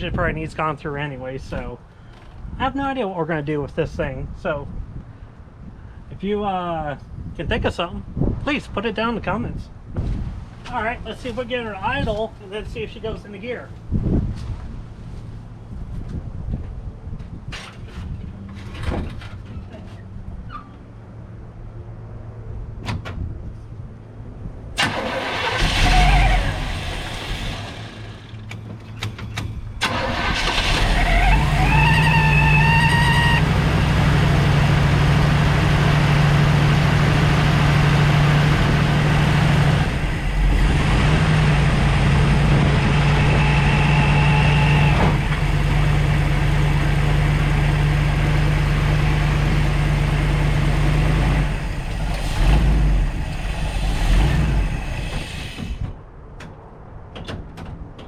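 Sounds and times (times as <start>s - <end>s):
supercharger whine: 24.8s - 28.4s, 29.9s - 55.8s
car engine cranking and running: 24.8s - 29.1s, 29.8s - 56.0s.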